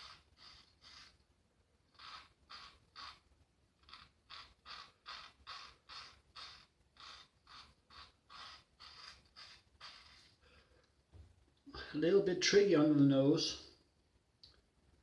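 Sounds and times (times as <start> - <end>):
razor scraping stubble: 0.0 - 1.2, 1.9 - 3.2, 3.8 - 10.4.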